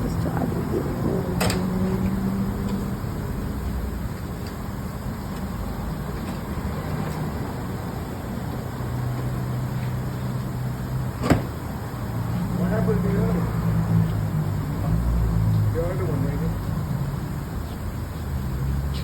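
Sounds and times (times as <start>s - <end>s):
car engine rumbling: 0.0s - 6.7s.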